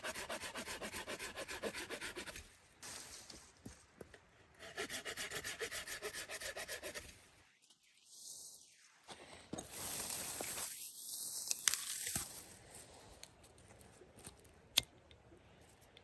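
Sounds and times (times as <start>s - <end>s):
hand tool rasping wood: 0.0s - 2.4s, 4.7s - 7.0s.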